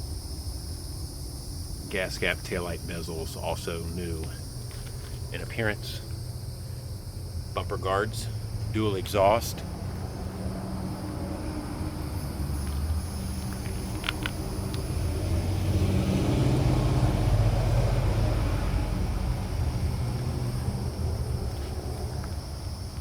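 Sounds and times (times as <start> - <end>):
road vehicle passing: 4.0 - 23.0.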